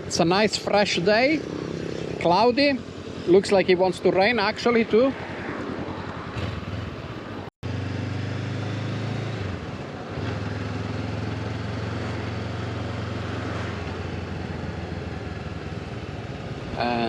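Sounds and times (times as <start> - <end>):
motorcycle engine running: 0.0 - 4.9, 6.3 - 17.0.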